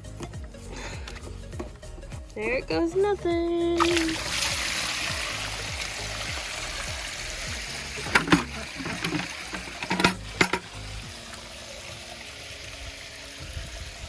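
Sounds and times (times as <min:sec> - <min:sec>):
water draining from tub: 0:03.8 - 0:14.0.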